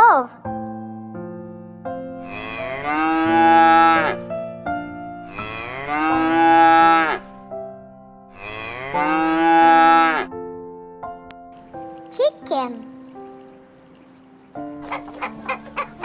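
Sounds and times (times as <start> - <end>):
light background music: 0.0 - 16.0
cow mooing: 2.2 - 4.3, 5.3 - 7.4, 8.3 - 10.3.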